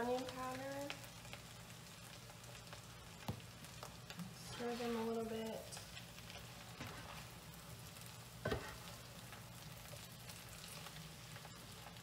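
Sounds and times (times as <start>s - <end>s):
potatoes sizzling in a frying pan: 0.0s - 12.0s.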